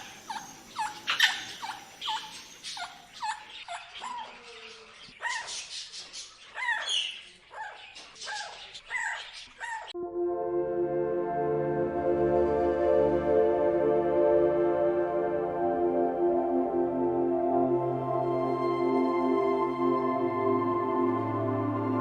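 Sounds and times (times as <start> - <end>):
parrot calling: 0.0 - 10.0.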